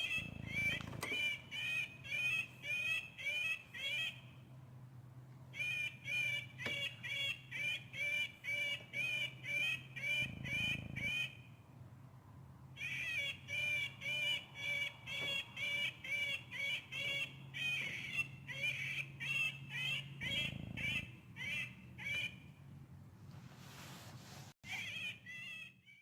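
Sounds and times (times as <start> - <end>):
bird call repeating rapidly: 0.0 - 4.4, 5.5 - 11.5, 12.8 - 22.5, 24.6 - 26.0
faint low hum: 0.0 - 26.0.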